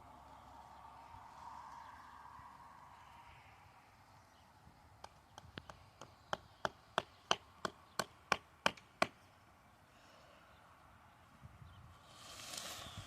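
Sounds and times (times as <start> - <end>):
tent peg being hammered: 5.0 - 9.2.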